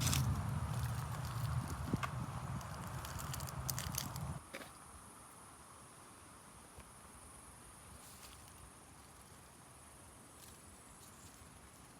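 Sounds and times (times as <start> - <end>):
insects chirring: 0.0 - 5.4.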